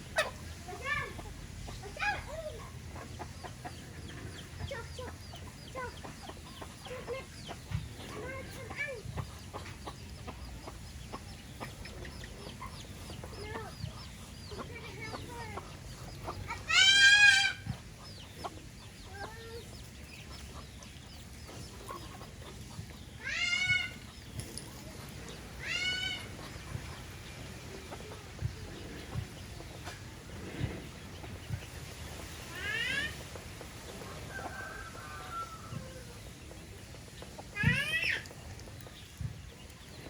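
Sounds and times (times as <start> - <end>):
chickens clucking: 0.0 - 40.0
chicken drawn-out cries: 16.2 - 18.4, 23.2 - 24.2, 25.5 - 26.8, 34.0 - 36.3, 37.4 - 38.4.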